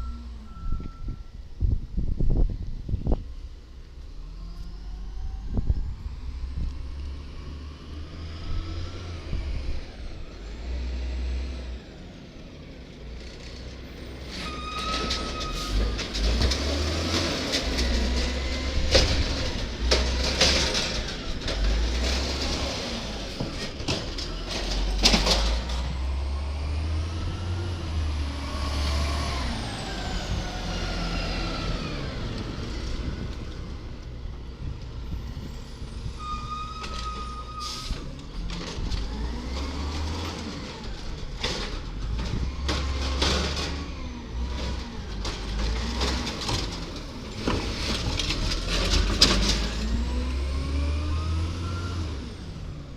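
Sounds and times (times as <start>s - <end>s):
truck engine revving: 15.6s - 36.2s, 37.6s - 52.9s.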